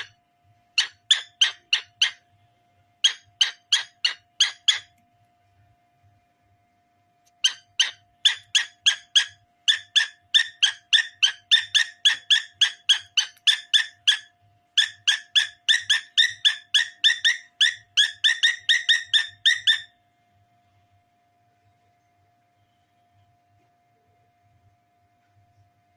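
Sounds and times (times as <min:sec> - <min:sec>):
cockatiel chirping: 0:00.8 - 0:02.3, 0:03.0 - 0:04.9, 0:07.4 - 0:20.0.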